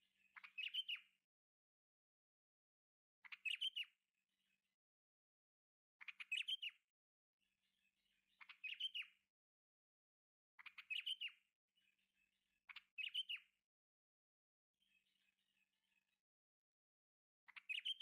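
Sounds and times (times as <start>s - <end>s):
bird chirping: 0.0s - 1.2s, 3.2s - 4.0s, 6.0s - 6.8s, 8.0s - 9.2s, 10.6s - 13.5s, 17.5s - 18.0s
faint bird twittering: 0.0s - 1.2s, 3.2s - 4.0s, 6.0s - 6.8s, 8.2s - 9.2s, 10.6s - 13.6s, 17.5s - 18.0s.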